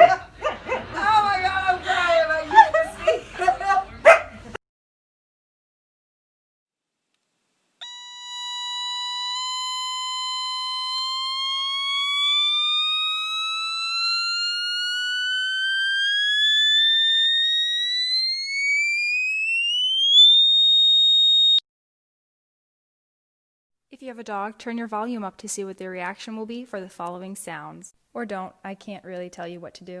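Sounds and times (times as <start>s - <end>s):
electronic tone gliding upward: 7.8s - 21.6s.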